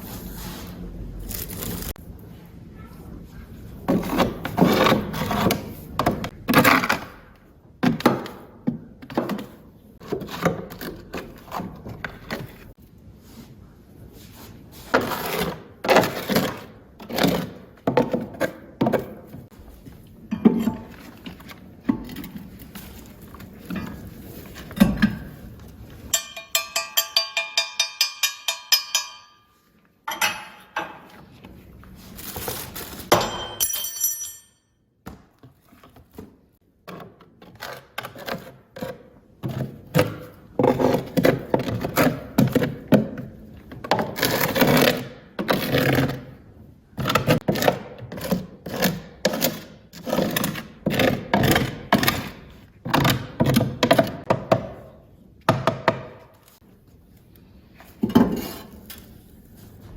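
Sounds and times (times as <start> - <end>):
objects scraping and knocking: 3.1 - 26.2, 35.4 - 46.4, 57.6 - 59.9.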